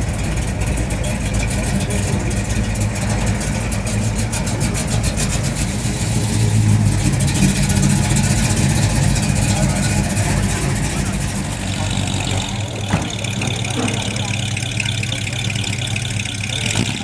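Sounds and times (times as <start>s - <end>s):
car engine and exhaust rumbling: 0.0s - 17.0s.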